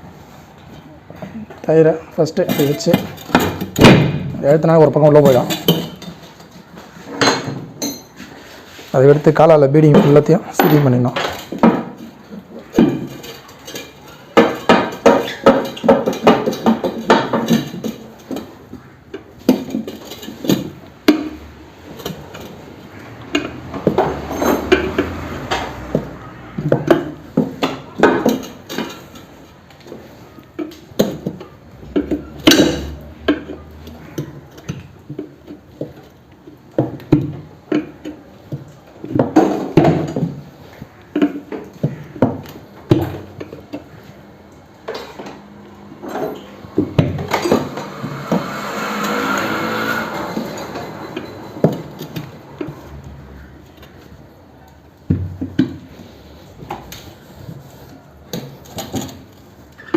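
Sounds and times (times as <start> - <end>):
metal clanks and knocks: 2.3 - 8.4, 9.7 - 54.2.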